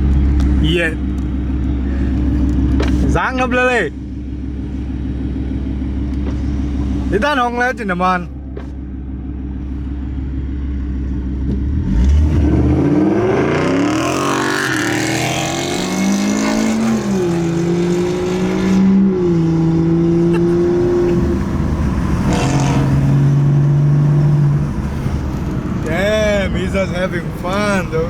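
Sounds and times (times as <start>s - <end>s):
car engine accelerating hard: 10.5s - 28.0s.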